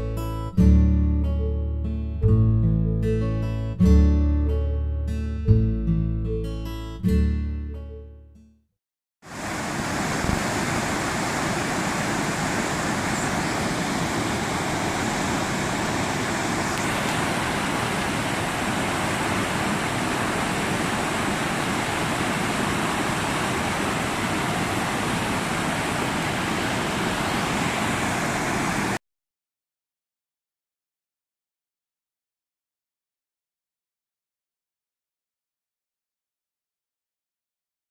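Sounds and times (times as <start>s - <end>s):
waterfall rushing: 9.3s - 29.0s.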